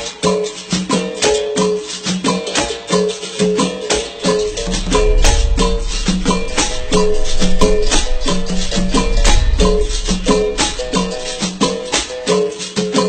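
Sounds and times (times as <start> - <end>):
low rumble: 4.3 - 12.0.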